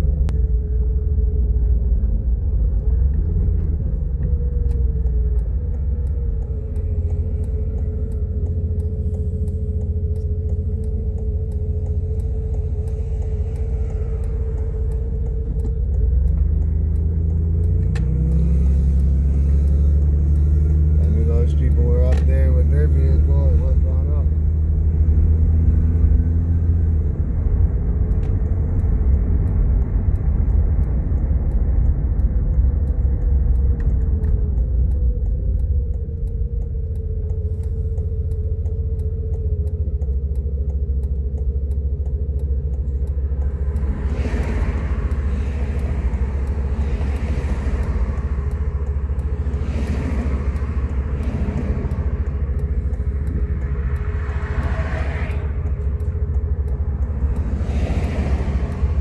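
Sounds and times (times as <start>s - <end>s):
car interior rumble: 0.0s - 59.0s
faint wavering hum: 0.0s - 59.0s
hissing noise of passing traffic: 43.4s - 59.0s.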